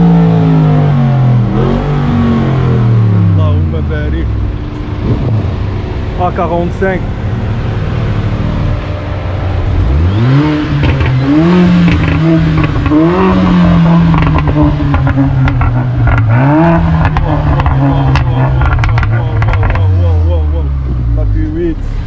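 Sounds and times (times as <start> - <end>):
car engine revving: 0.0 - 22.0
short sharp exhaust cracks: 10.8 - 20.2.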